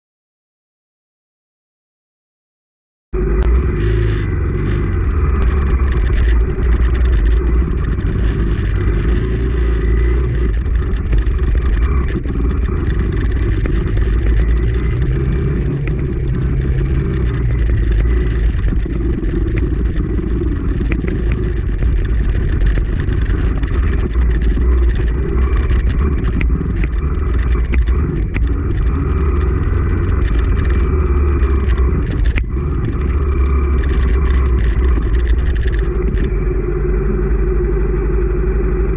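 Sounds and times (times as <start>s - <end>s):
dirt bike engine running: 3.2s - 38.9s.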